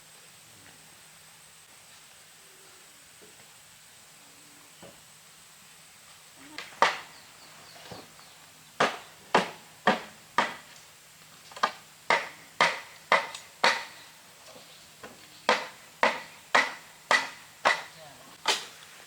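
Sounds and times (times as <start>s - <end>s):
hand tool striking wood: 6.6s - 7.2s, 8.8s - 10.8s, 11.6s - 14.1s, 15.0s - 18.7s.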